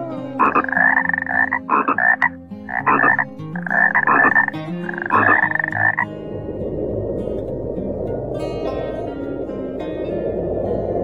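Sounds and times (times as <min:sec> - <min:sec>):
soft background music: 0:00.0 - 0:11.0
animal rasping calls: 0:00.4 - 0:06.0.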